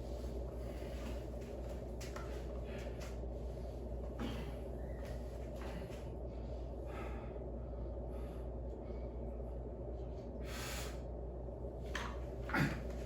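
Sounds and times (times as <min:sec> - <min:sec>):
low hum: 0:00.0 - 0:13.0
person breathing hard: 0:05.6 - 0:09.3, 0:10.4 - 0:11.2.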